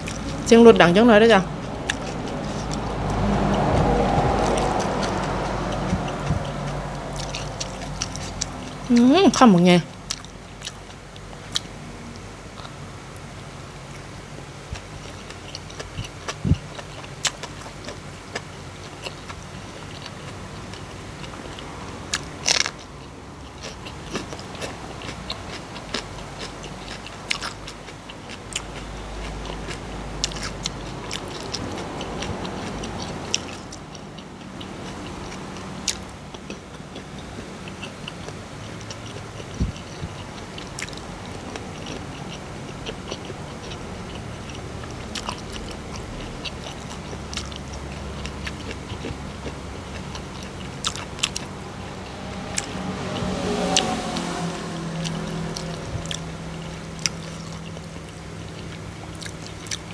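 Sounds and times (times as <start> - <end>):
crunchy chewing: 0.0 - 0.5, 1.3 - 59.9
low rumble: 0.0 - 10.6, 41.0 - 59.0.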